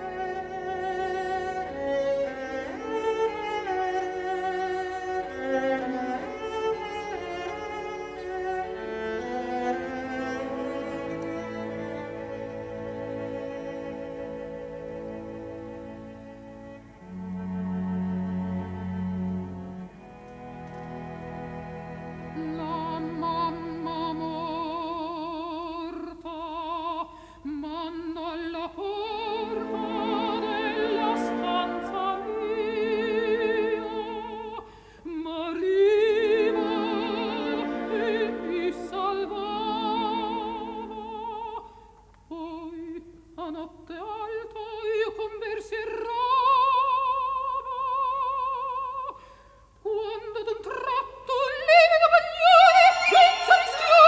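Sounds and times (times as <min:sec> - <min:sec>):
operatic singing in a high voice: 0:22.4 - 0:49.2, 0:49.8 - 0:54.0
orchestral accompaniment: 0:29.2 - 0:34.2.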